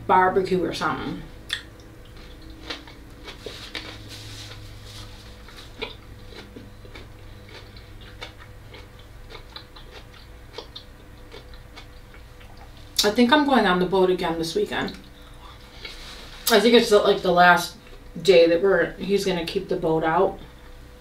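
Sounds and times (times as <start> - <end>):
faint steady hum: 0.0 - 21.0
wet chewing mouth clicks: 5.4 - 12.8.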